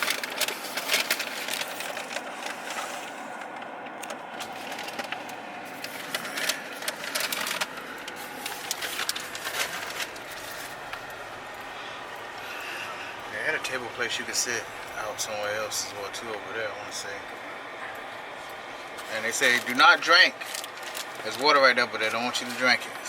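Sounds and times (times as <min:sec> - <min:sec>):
sharp clicks and crackles: 0:00.0 - 0:02.6, 0:03.4 - 0:12.3, 0:20.4 - 0:21.5.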